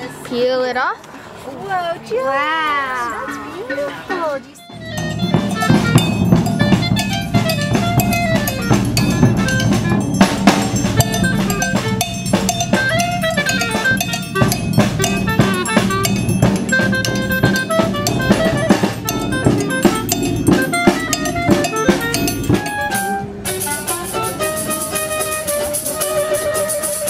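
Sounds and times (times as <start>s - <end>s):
drum kit playing busy beat: 3.6s - 27.0s
melodic instrument lines: 3.7s - 27.0s
bass line: 4.7s - 24.7s.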